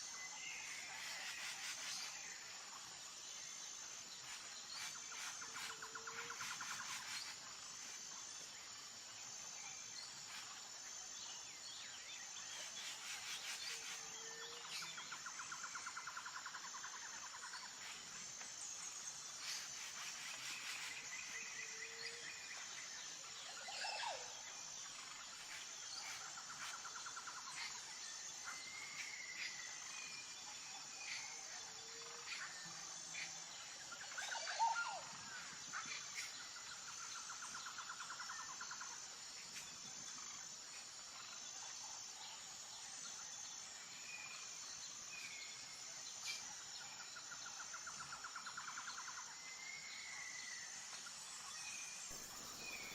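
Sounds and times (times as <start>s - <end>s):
insects trilling: 0.0s - 52.9s
bird chirps: 52.1s - 52.9s.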